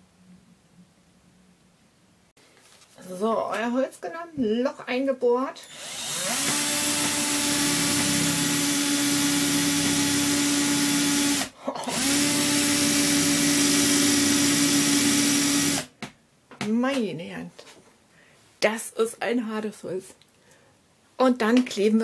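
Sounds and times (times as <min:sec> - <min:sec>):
electric drill boring into wood: 0:05.7 - 0:15.9.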